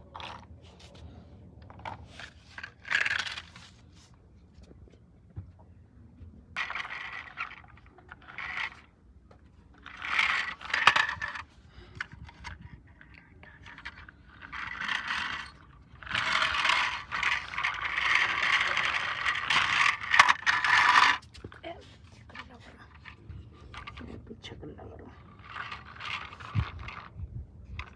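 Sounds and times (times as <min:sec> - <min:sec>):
small hard objects rattling: 0:13.4 - 0:21.3.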